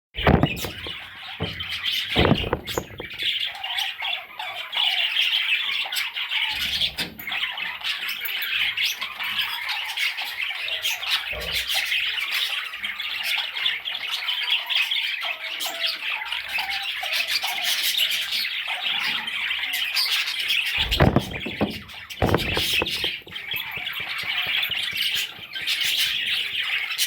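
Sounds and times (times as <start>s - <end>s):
dull thumps: 0.2s - 3.3s, 20.8s - 26.7s.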